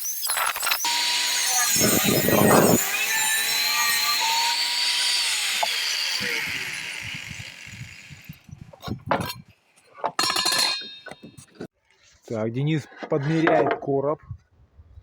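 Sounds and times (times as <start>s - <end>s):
angle grinder cutting steel: 0.0s - 9.4s, 10.2s - 11.4s.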